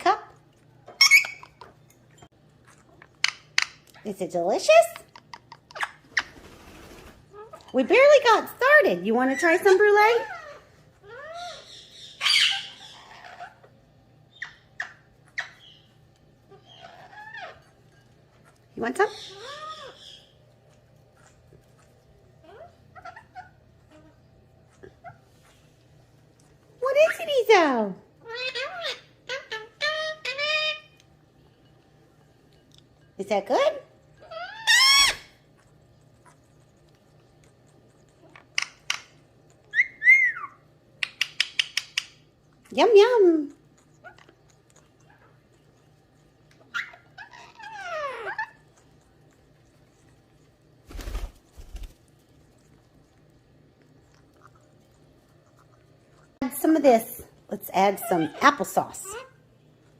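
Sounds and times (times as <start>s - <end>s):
parrot squawking: 0.9s - 1.6s, 9.3s - 13.7s, 16.5s - 17.7s, 19.0s - 20.4s, 22.4s - 24.2s, 28.2s - 31.0s, 34.2s - 35.4s, 38.2s - 42.1s, 46.6s - 48.7s, 57.8s - 59.4s
parrot whistled calls: 1.0s - 1.6s, 10.2s - 13.6s, 34.3s - 35.4s, 39.7s - 41.7s.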